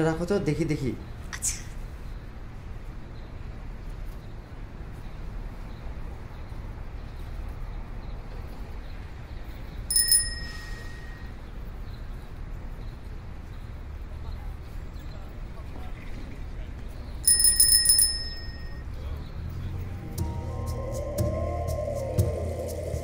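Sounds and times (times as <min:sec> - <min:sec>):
low outdoor rumble: 0:00.0 - 0:23.0
bicycle bell ring: 0:09.9 - 0:11.4, 0:17.2 - 0:18.9.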